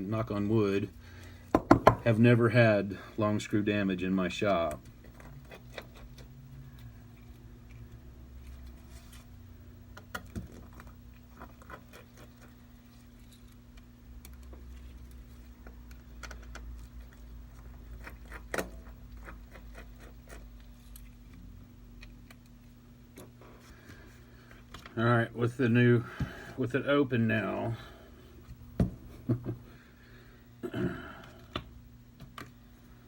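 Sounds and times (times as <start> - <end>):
low electrical hum: 0.0 - 33.0.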